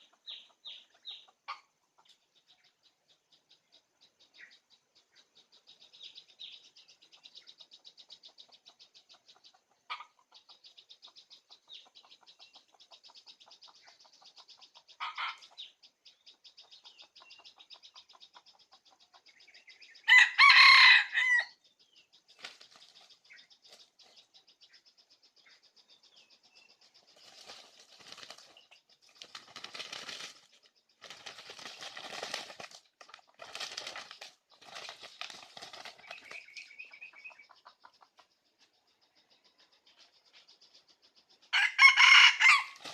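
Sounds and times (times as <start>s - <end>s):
rooster crowing: 20.1s - 21.6s, 41.5s - 42.8s.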